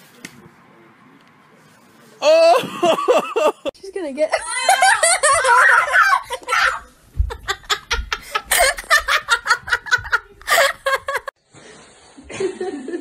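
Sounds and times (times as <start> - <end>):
people laughing: 2.4 - 3.8, 4.4 - 11.3
low bumps: 6.4 - 11.2.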